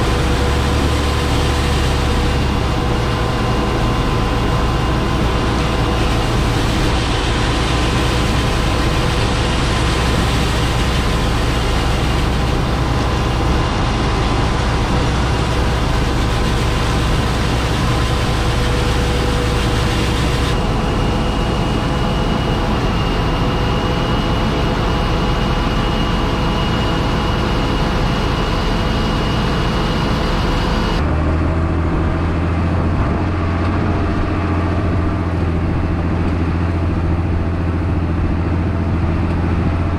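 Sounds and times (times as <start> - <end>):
machinery whining tones: 0.0 - 31.4
combine harvester engine drone: 0.0 - 39.9.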